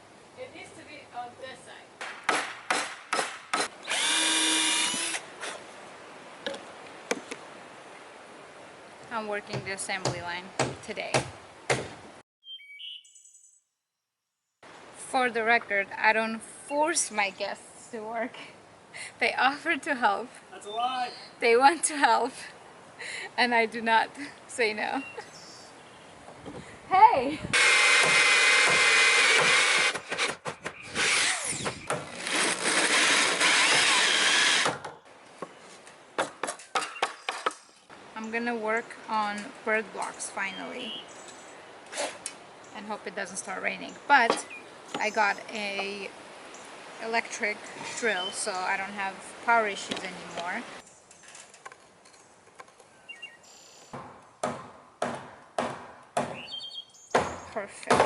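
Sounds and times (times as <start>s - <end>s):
electric drill running: 3.6s - 5.2s, 27.5s - 30.0s, 32.2s - 34.6s.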